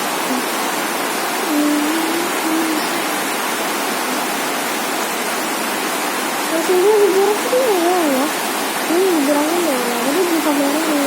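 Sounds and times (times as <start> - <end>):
heavy rain pouring: 0.0 - 11.0
faint voice: 1.4 - 3.2.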